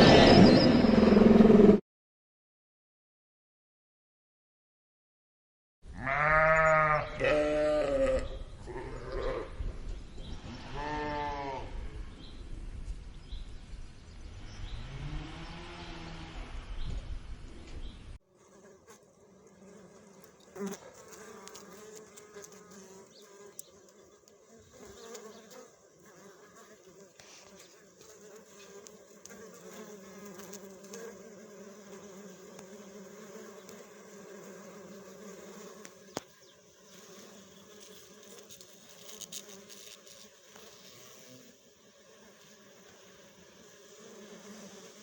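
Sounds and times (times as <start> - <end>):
insect buzzing: 18.2 - 45.0.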